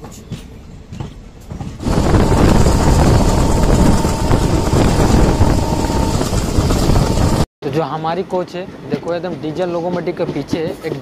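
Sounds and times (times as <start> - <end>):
train rumbling past: 0.1 - 7.4
wind buffeting the microphone: 1.5 - 7.4.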